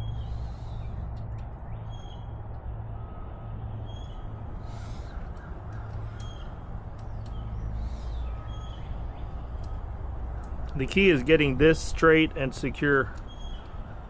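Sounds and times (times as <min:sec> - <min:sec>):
short bird calls: 0:00.0 - 0:01.1, 0:03.0 - 0:10.6, 0:13.0 - 0:14.0
low outdoor rumble: 0:00.0 - 0:14.0.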